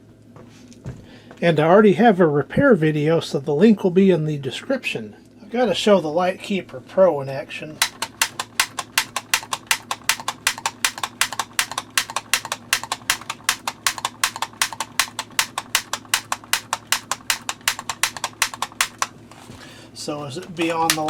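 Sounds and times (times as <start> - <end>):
repair tool trigger clicking: 7.8 - 19.1, 20.4 - 21.0.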